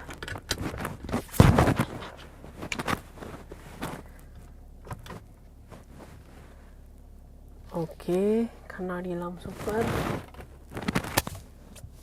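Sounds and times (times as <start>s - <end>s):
seat belt webbing rustling: 0.0s - 6.7s, 9.2s - 12.0s
low cabin hum: 0.0s - 12.0s.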